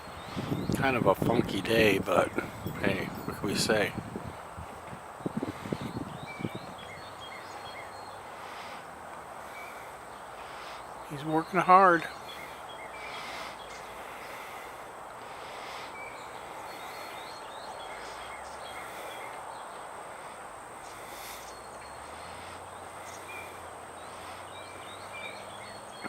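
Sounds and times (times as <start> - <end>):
faint bird chirps: 0.0 - 8.8
outdoor background noise: 0.0 - 26.0.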